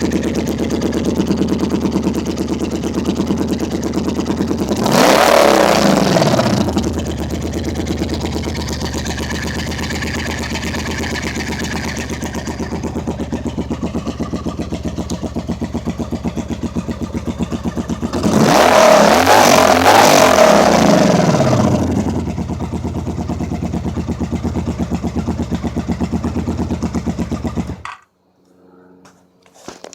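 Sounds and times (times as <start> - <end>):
motorcycle engine idling and revving: 0.0 - 28.0.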